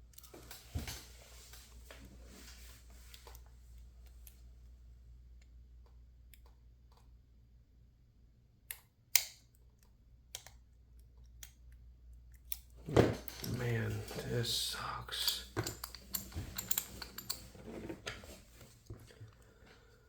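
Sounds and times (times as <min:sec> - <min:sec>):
lock pick clicks: 0:15.2 - 0:17.4.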